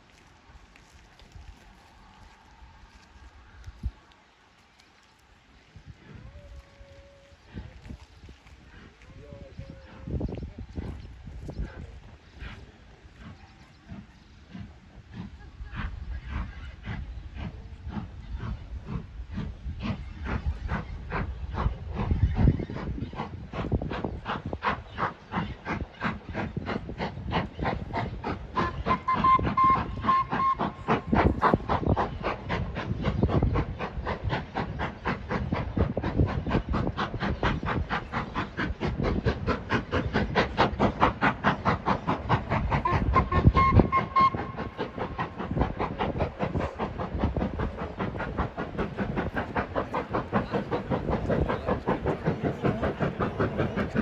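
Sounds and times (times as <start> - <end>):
steam locomotive chuffing: 0.0 - 54.0
train whistle blowing: 28.6 - 30.8, 42.8 - 44.7.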